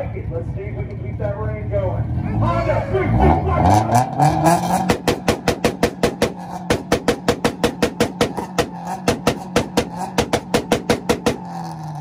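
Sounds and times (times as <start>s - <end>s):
car engine revving: 0.0s - 12.0s
rev limiter popping and banging: 3.9s - 12.0s.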